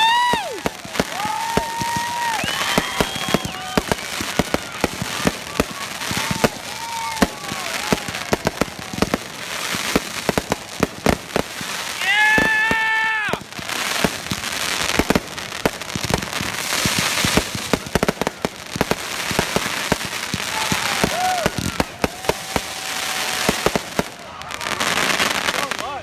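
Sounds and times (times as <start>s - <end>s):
firework whistle: 0.0s - 9.2s
fireworks bangs and crackling: 0.0s - 26.0s.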